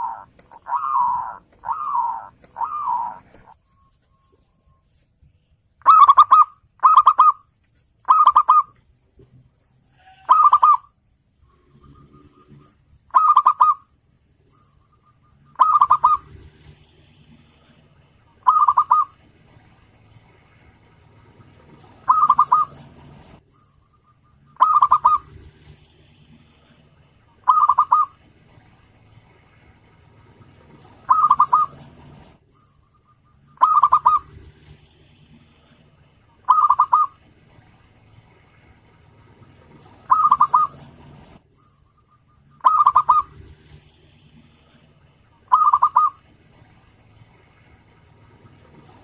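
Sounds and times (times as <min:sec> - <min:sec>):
dove cooing: 0:00.0 - 0:03.6, 0:05.8 - 0:07.4, 0:08.1 - 0:08.7, 0:10.0 - 0:10.9, 0:11.6 - 0:13.8, 0:14.6 - 0:16.8, 0:18.4 - 0:19.3, 0:21.5 - 0:23.3, 0:24.4 - 0:25.7, 0:27.4 - 0:28.3, 0:30.6 - 0:34.8, 0:36.4 - 0:37.3, 0:39.6 - 0:41.4, 0:42.5 - 0:43.9, 0:45.5 - 0:46.3.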